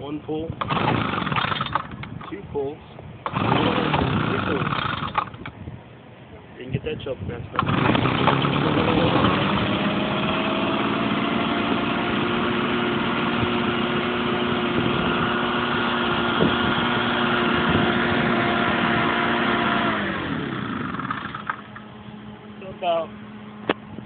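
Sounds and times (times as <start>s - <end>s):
leaf blower engine running: 0.6s - 2.0s, 3.3s - 5.4s, 7.6s - 23.3s.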